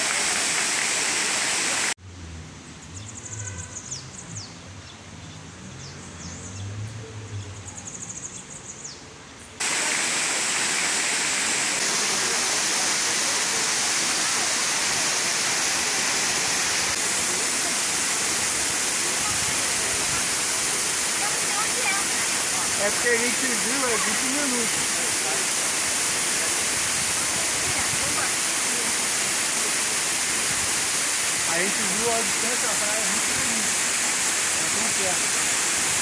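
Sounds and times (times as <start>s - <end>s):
waterfall rushing: 0.0s - 2.0s, 9.6s - 36.0s.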